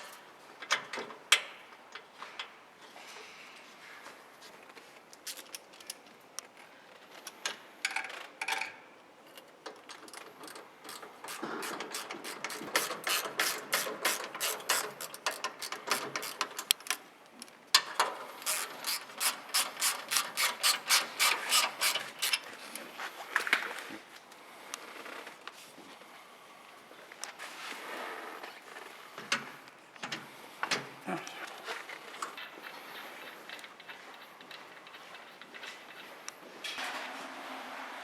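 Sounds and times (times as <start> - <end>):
hand tool clicking: 18.4 - 22.5.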